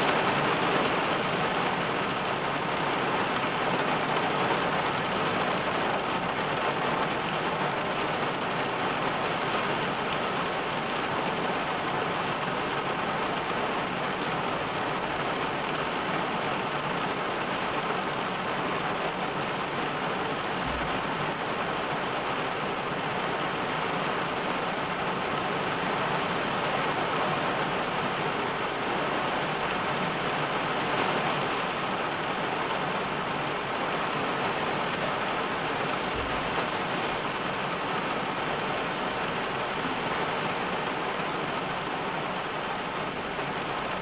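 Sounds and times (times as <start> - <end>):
rain on car roof: 0.0 - 44.0.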